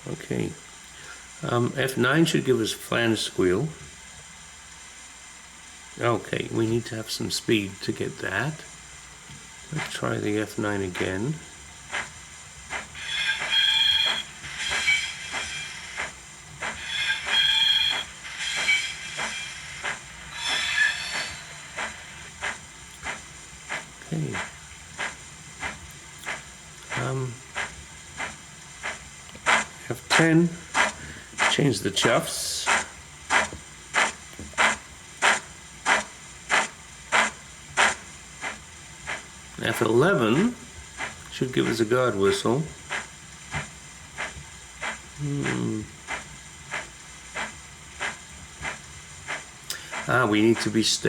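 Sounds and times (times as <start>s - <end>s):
steam locomotive exhaust chuffs: 0.0s - 51.0s
high-pitched flange squeal: 16.8s - 19.6s, 20.3s - 21.7s.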